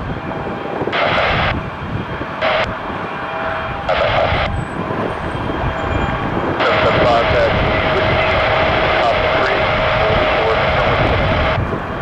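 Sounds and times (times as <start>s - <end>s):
jet engines running: 0.0s - 12.0s
radio scanner hiss: 3.9s - 4.4s, 6.6s - 11.6s.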